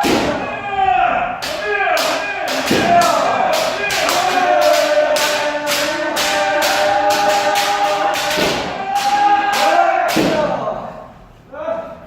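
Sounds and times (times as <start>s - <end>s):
people shouting together: 0.0s - 11.1s
stamping feet and strikes: 1.4s - 10.5s.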